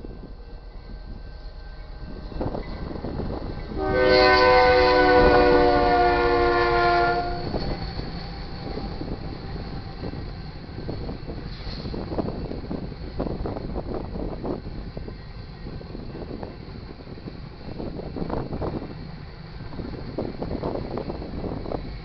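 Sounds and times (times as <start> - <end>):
train wheels rumbling on rails: 0.0 - 22.0
locomotive air horn blast: 3.7 - 7.6.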